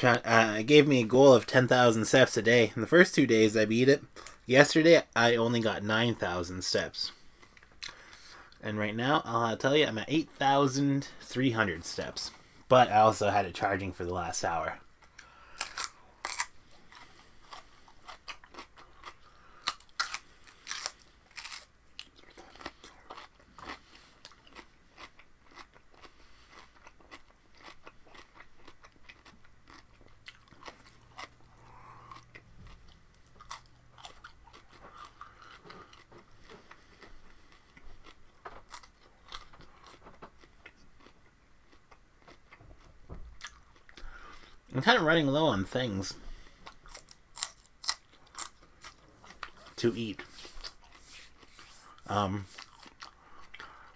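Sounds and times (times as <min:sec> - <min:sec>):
person chewing raw vegetables: 0:15.0 - 0:44.7, 0:46.2 - 0:53.9.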